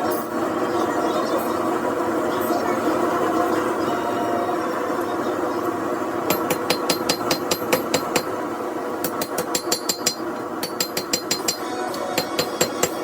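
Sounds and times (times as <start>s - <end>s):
hammer ringing on anvil: 6.3s - 8.3s, 9.1s - 13.0s.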